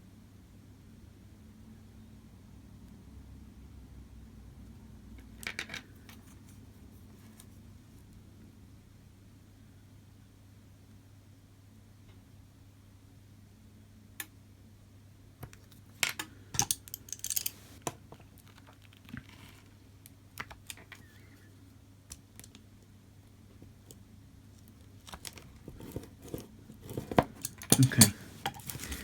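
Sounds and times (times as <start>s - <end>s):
clicks and taps of small parts: 15.4s - 18.0s.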